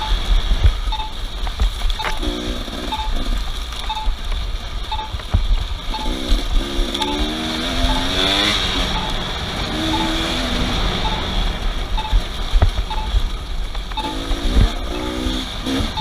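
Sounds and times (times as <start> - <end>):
low thumps: 0.0 - 16.0
rush of noise: 0.0 - 16.0
short high beep: 0.9 - 1.2, 3.9 - 4.1
vehicle engine revving: 2.0 - 4.0, 5.8 - 16.0.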